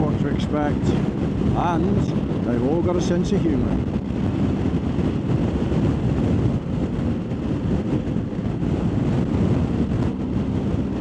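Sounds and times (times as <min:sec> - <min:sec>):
road noise: 0:00.0 - 0:11.0
wind rushing over microphone: 0:00.0 - 0:11.0
motorcycle engine: 0:03.8 - 0:11.0.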